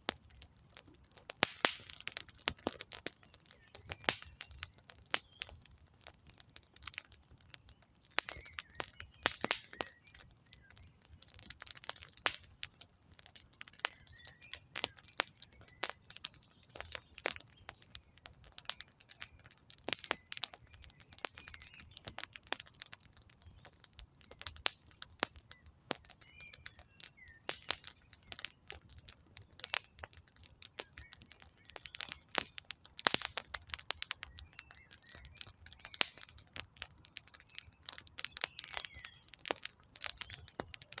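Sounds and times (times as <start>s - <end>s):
campfire crackling and popping: 0.0s - 41.0s
faint bird chirps: 7.5s - 11.4s, 13.8s - 18.2s, 18.8s - 22.1s, 25.5s - 30.0s, 30.8s - 32.6s, 34.2s - 36.3s, 37.4s - 39.4s.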